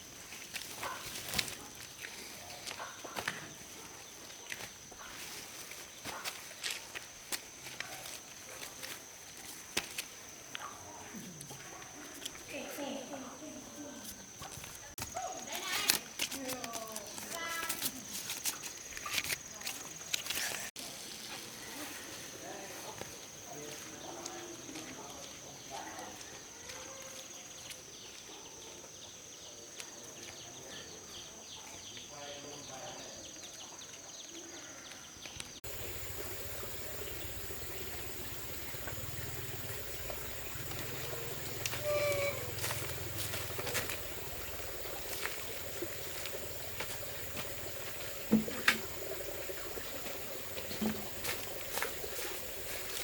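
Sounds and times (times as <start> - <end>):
insects droning: 0.0 - 53.0
bird chirping: 35.2 - 53.0
water trickling: 35.6 - 53.0.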